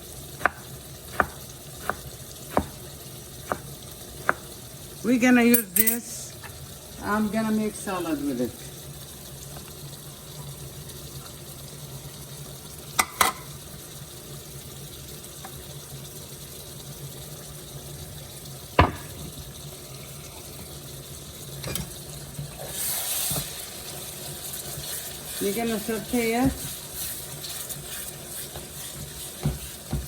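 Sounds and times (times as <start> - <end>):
utensils clacking: 5.5 - 6.1.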